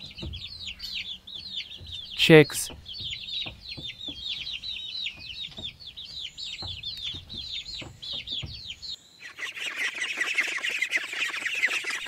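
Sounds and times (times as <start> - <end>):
faint low knocks: 0.0 - 9.0
chicks peeping: 0.0 - 12.0.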